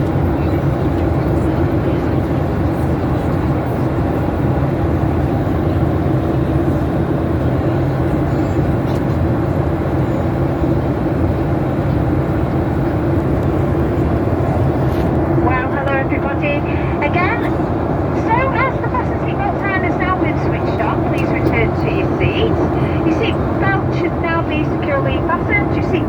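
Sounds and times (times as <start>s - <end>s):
airliner cabin engine drone: 0.0s - 26.0s
low hum: 13.9s - 26.0s.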